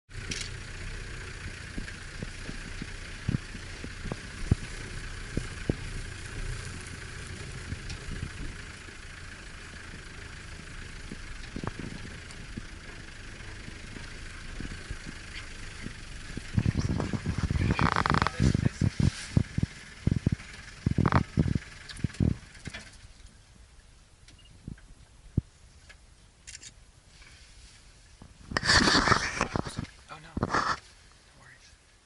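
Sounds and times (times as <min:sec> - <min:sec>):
vehicle engine idling: 0:00.1 - 0:32.0
sharp clicks and snaps: 0:25.9 - 0:26.8.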